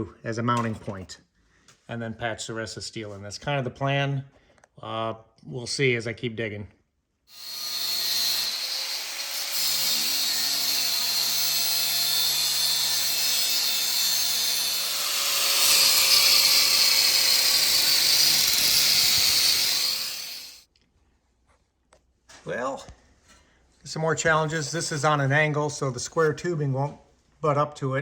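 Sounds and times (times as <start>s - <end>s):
angle grinder on steel: 7.3s - 20.6s.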